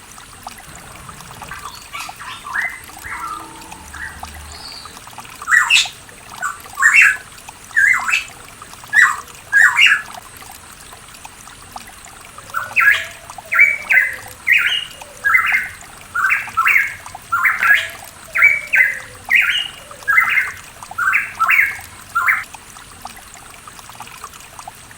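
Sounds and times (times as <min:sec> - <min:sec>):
faint trickle of water: 0:00.0 - 0:24.9
bird singing loud paired notes: 0:00.7 - 0:05.9.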